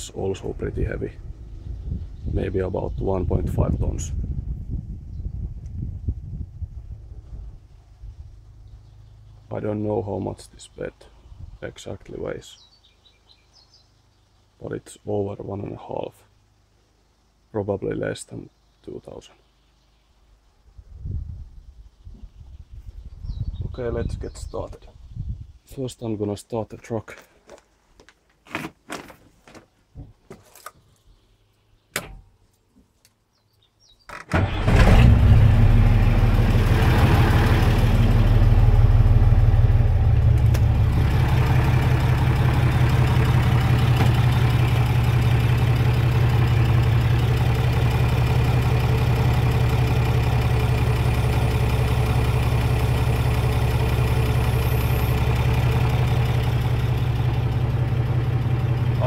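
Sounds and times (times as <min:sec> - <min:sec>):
truck engine starting and running: 0:00.0 - 0:04.0, 0:34.1 - 0:59.0.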